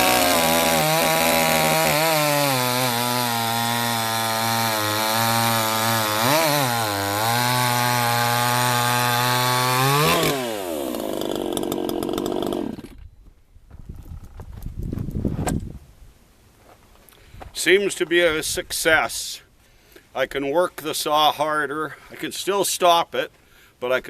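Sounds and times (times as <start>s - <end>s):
chainsaw running at high revs: 0.0s - 13.0s.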